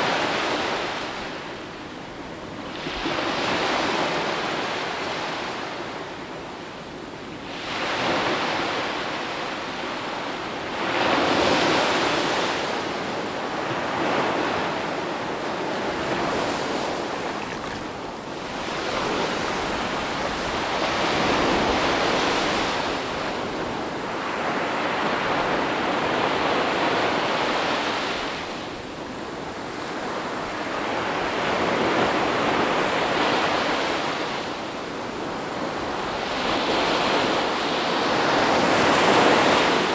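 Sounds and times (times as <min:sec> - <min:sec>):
ocean waves breaking: 0:10.0 - 0:28.4.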